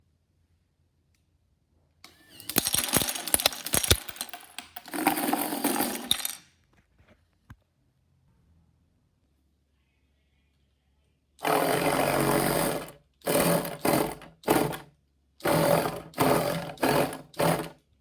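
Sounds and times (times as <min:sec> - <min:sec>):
plastic toy bricks clattering: 0:02.1 - 0:06.5, 0:11.4 - 0:14.8, 0:15.4 - 0:17.7.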